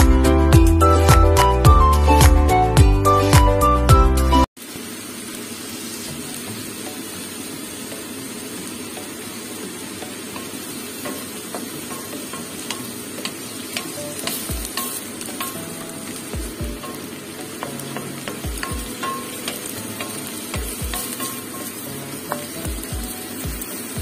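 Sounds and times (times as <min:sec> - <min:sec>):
vegetables sizzling in a pan: 0:04.6 - 0:24.0.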